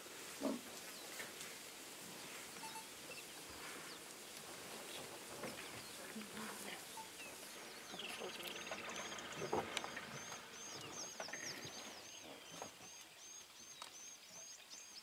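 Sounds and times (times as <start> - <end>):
faint bush ambience: 0.0 - 15.0.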